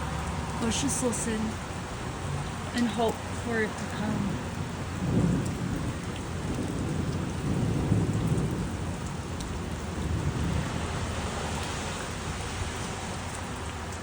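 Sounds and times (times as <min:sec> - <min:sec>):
rain falling: 0:00.0 - 0:14.0
low rolling thunder: 0:04.0 - 0:13.6.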